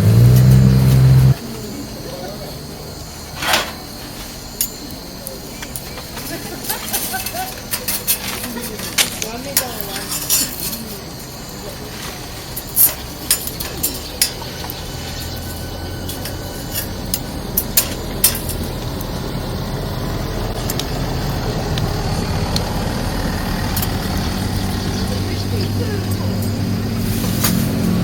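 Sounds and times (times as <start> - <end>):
wood fire crackling: 0.0 - 28.0
low rumble: 13.0 - 27.1.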